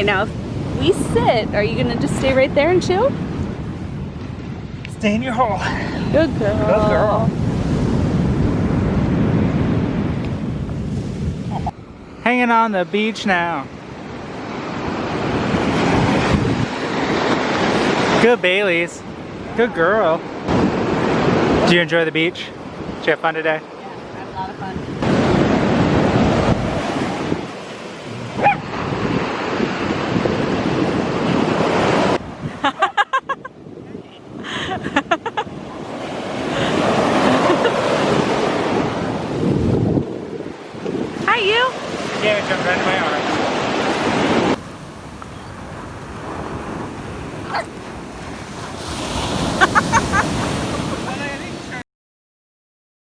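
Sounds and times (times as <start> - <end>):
wind buffeting microphone: 0.0 - 12.2, 13.3 - 23.1, 24.0 - 51.8
ocean surf: 0.0 - 51.8
puppy yip: 11.5 - 11.8, 28.4 - 28.7, 47.5 - 47.7.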